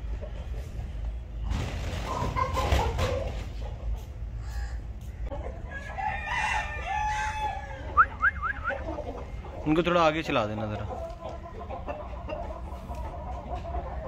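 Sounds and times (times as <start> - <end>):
poultry chirping: 0.0 - 14.0
rooster crowing: 5.7 - 8.3.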